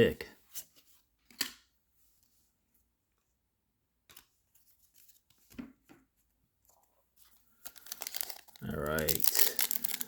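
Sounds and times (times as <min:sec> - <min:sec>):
trading cards rustling: 0:07.3 - 0:10.0.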